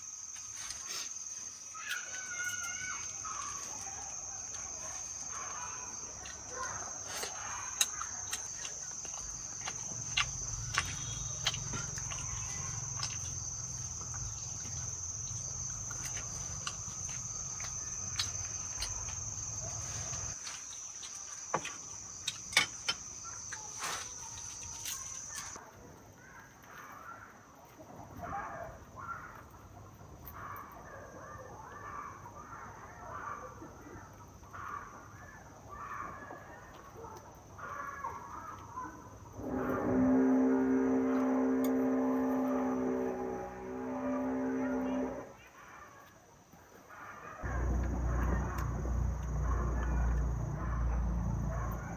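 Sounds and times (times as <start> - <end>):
high insect trill: 0.0 - 25.6, 37.6 - 45.5, 47.4 - 51.9
short scattered calls: 0.4 - 25.6
low rumble: 47.4 - 51.9.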